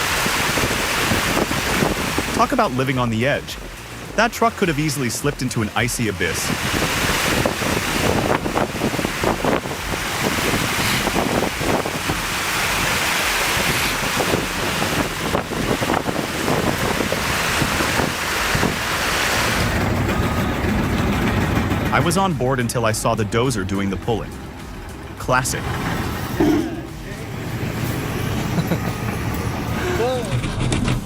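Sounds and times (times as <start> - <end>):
wind blowing across microphone: 0.0 - 2.7, 6.2 - 20.0.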